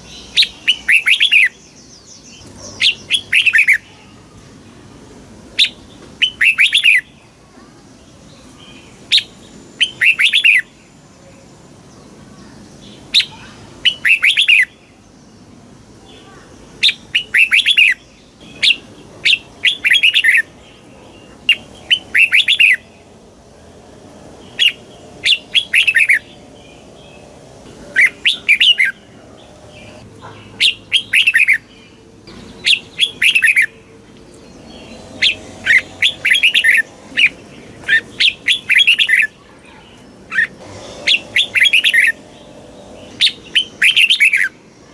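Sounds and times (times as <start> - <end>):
bird singing warbled phrases: 0.0 - 4.7, 5.5 - 44.9.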